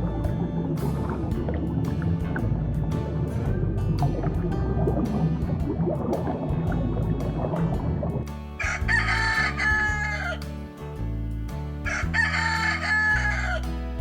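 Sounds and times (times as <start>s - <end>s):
background music: 0.0s - 14.0s
rooster crowing: 8.6s - 10.4s, 11.8s - 13.7s.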